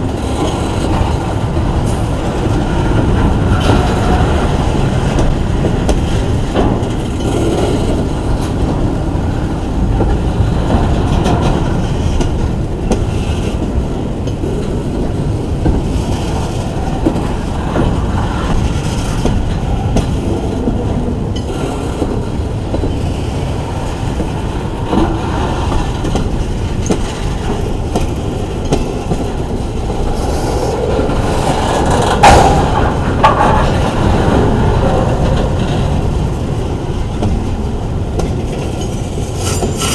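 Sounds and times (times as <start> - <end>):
train wheels rumbling on rails: 0.0 - 39.9
wheels clicking over rail joints: 0.0 - 39.9
wheel squeal: 39.4 - 39.9.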